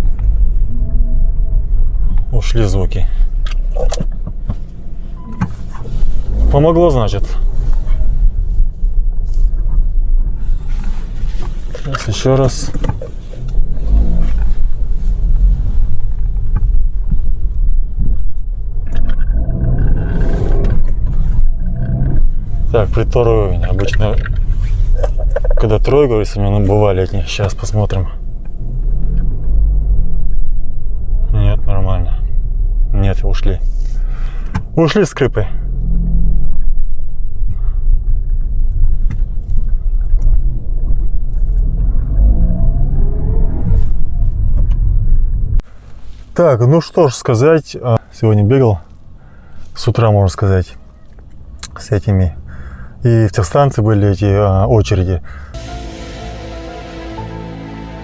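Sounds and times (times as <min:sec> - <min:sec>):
engine and road rumble in cabin: 0:00.0 - 0:56.8.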